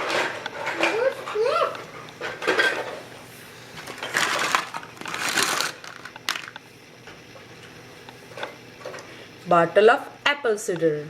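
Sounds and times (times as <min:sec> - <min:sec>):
scratchy handling noise: 0:03.8 - 0:06.5.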